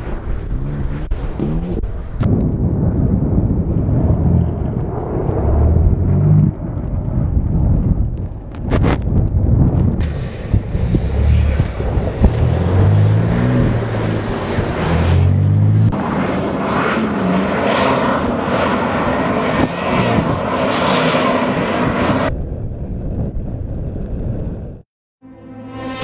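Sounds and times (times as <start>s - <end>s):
car engine revving: 0.0s - 2.3s, 10.0s - 22.3s.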